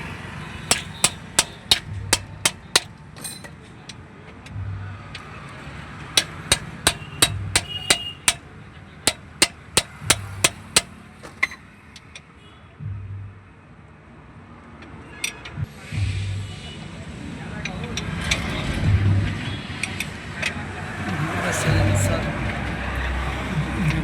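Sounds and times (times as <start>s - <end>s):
hammer striking metal: 0.7s - 3.6s, 6.2s - 8.4s, 9.1s - 10.9s.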